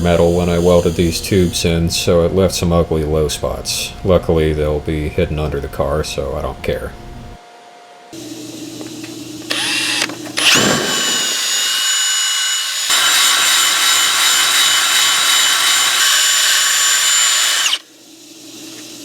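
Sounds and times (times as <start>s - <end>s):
power tool whining on steel: 0.0s - 1.7s, 9.5s - 18.0s.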